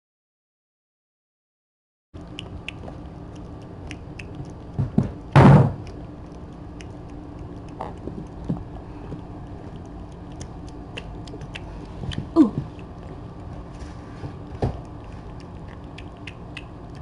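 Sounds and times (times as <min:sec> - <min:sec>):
loud thud: 0:05.4 - 0:05.8.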